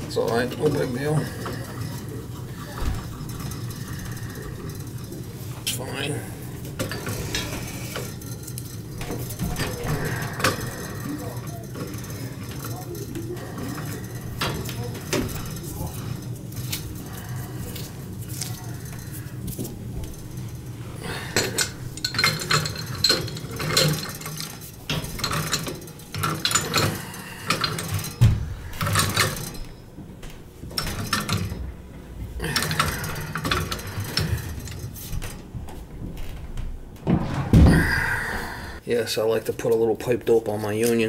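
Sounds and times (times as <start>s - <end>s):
metal tools clinking on pipe: 6.7s - 29.9s.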